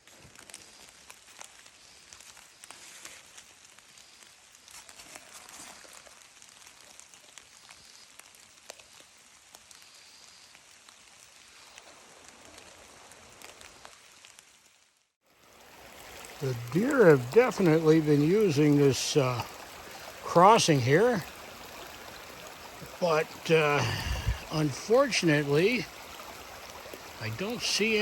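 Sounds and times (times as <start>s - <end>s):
light rain hissing: 0.0s - 28.0s
raindrops ticking: 15.5s - 28.0s.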